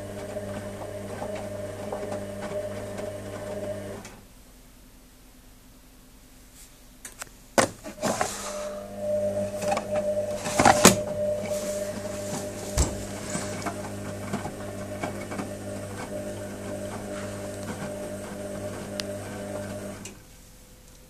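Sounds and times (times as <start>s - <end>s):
washing machine motor hum: 0.0s - 4.4s, 7.8s - 21.0s
washing machine clicks: 9.6s - 16.2s.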